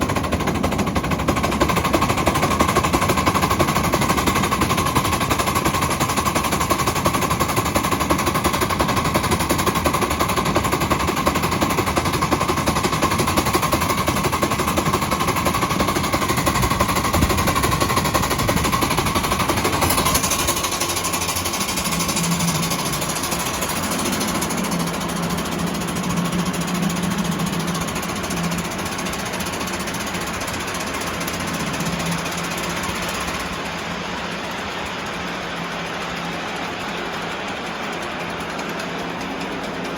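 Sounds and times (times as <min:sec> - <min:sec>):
steam locomotive exhaust chuffing: 0:00.0 - 0:39.9
steam hiss: 0:00.1 - 0:39.9
low hum: 0:08.1 - 0:39.9.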